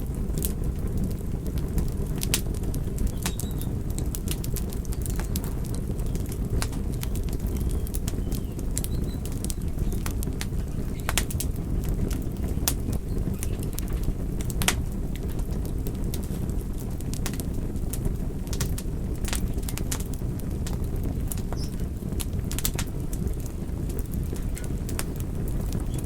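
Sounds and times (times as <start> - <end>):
low rumble of burning fire: 0.0 - 26.0
wood fire crackling and popping: 0.0 - 26.0.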